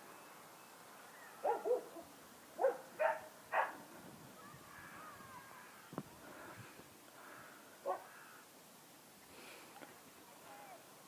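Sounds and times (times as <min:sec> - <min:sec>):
dog barking: 0:01.4 - 0:02.0, 0:02.6 - 0:03.8, 0:07.8 - 0:08.1.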